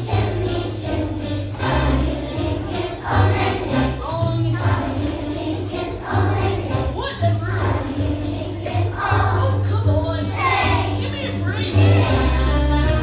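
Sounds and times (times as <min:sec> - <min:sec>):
children's choir singing: 0:00.0 - 0:13.0
children's choir singing a christmas song: 0:00.0 - 0:13.0
bass line: 0:08.8 - 0:13.0.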